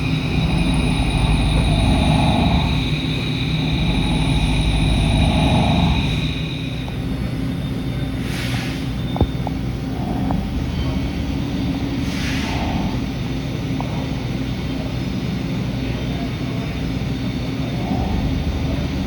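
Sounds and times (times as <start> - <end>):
low hum: 0.0 - 8.2
milling machine drone: 0.0 - 19.0.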